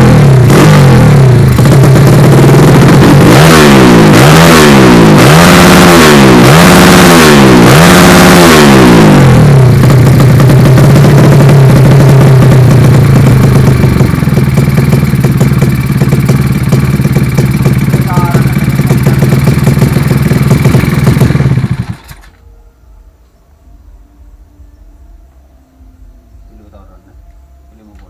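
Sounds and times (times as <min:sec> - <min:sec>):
motorcycle engine idling: 0:00.0 - 0:06.6, 0:07.4 - 0:22.4
motorcycle engine revving: 0:00.0 - 0:22.4.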